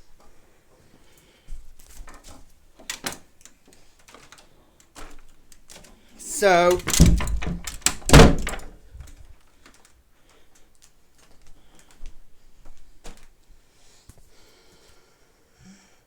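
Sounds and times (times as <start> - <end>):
faint clicks and light taps: 7.4 - 13.3.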